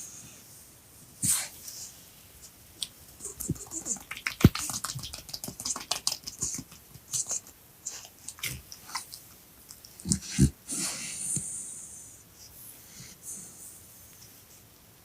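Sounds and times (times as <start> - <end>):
dog chewing clicks: 3.6 - 7.5.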